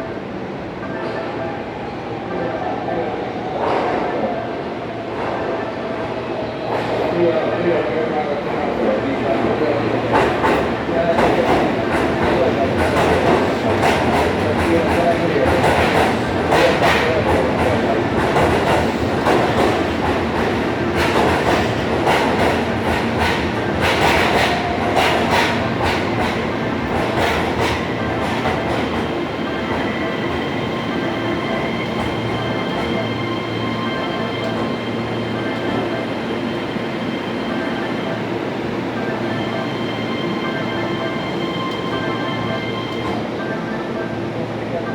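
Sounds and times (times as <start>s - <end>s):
train rumble: 6.6s - 44.9s
train wheels clacking over rail joints: 10.1s - 30.4s.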